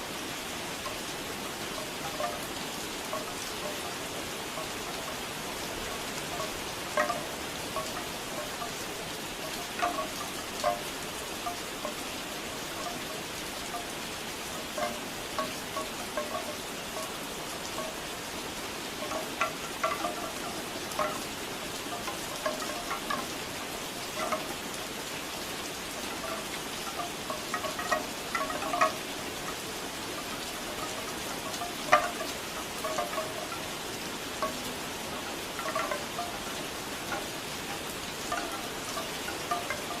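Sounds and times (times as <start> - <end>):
bamboo wind chimes knocking: 0.0 - 40.0
steady rain: 0.0 - 40.0.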